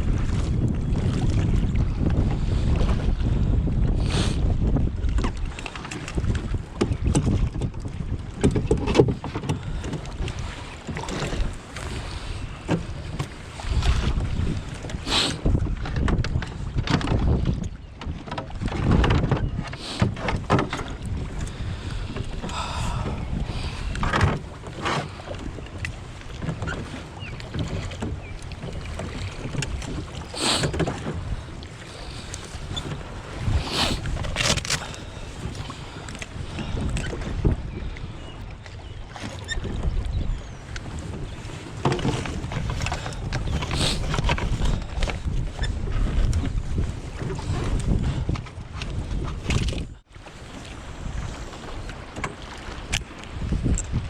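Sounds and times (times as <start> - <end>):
wind buffeting microphone: 0.0 - 54.0
low rumbling: 21.2 - 24.2.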